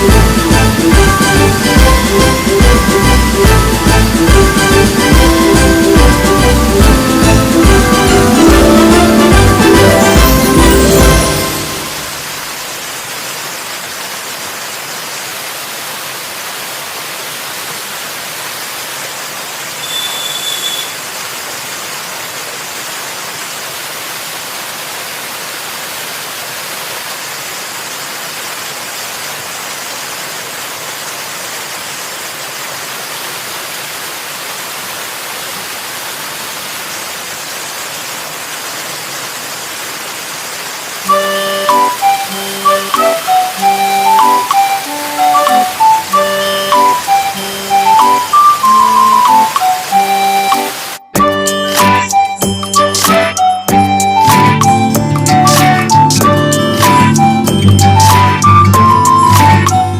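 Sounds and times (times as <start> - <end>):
flowing water rushing: 0.0 - 59.9
brief high-pitched sound: 41.1 - 59.9.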